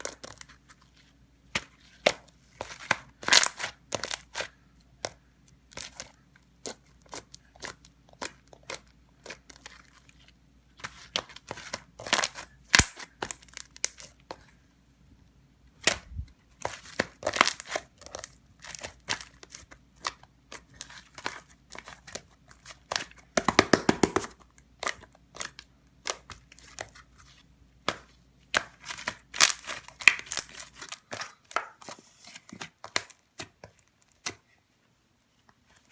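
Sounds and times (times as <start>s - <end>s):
slime popping and crackling: 12.0s - 14.0s, 23.4s - 24.4s, 28.6s - 31.1s.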